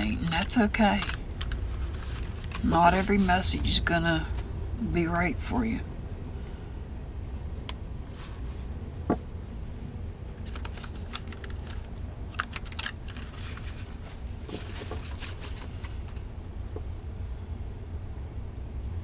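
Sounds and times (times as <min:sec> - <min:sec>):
low hum: 0:00.0 - 0:19.0
cards being shuffled: 0:00.2 - 0:03.7, 0:10.4 - 0:16.3.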